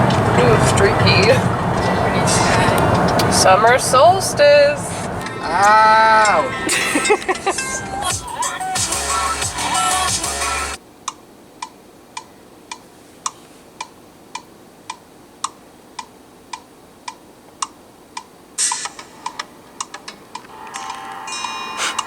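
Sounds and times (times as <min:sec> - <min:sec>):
mechanical ticking: 0:00.0 - 0:06.4
music: 0:05.2 - 0:10.8, 0:18.6 - 0:22.0
rustle: 0:10.8 - 0:22.0.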